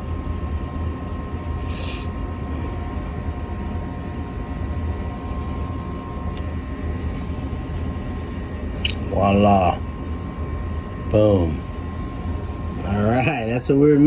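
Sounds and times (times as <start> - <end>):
faint high whine: 0.0 - 14.0
low mechanical hum: 0.0 - 14.0.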